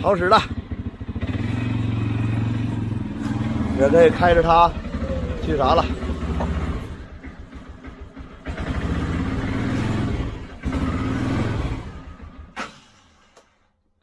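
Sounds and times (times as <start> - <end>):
car engine revving: 0.5 - 12.6.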